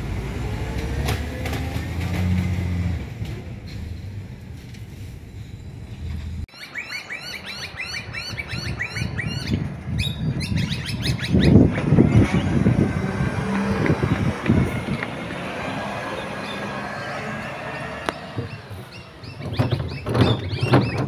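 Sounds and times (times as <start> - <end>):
garbage truck rumble: 0.0 - 6.4, 11.4 - 21.0
bird chirping rapidly: 6.5 - 12.6, 18.2 - 21.0.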